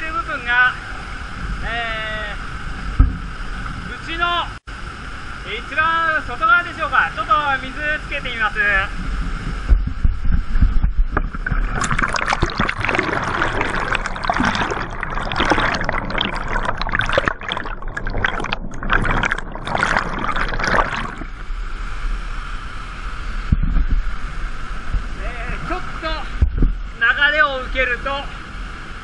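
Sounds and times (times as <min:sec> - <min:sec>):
water splashing and churning: 0:10.5 - 0:23.3.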